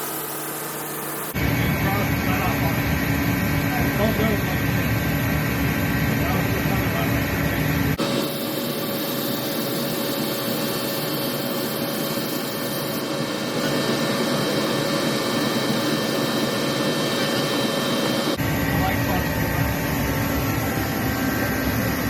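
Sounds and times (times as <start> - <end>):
rushing machine and air noise: 0.0 - 22.0.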